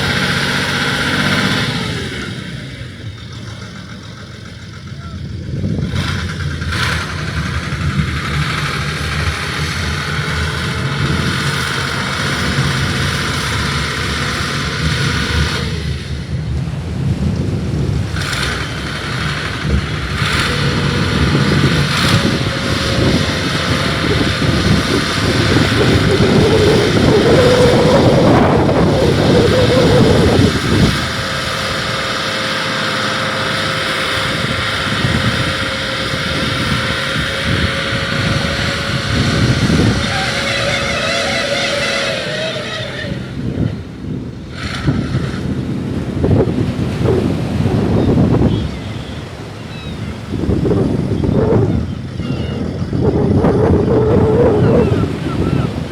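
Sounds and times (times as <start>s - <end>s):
engine running: 0.0s - 55.9s
higher rising tone: 20.2s - 43.9s.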